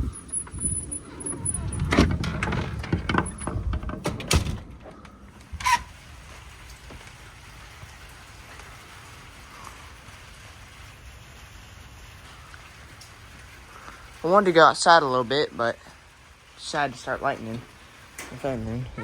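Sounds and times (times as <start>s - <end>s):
gusty rumble: 0.0s - 5.6s
knocks and clatters: 0.5s - 5.2s
heavy rain: 4.6s - 19.0s.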